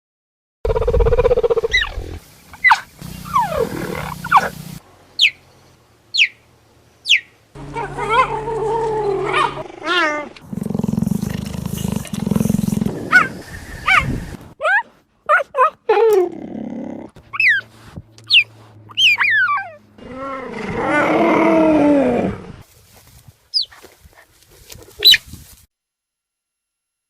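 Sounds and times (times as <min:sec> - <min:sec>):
big cat high chirps: 0:18.3 - 0:19.8.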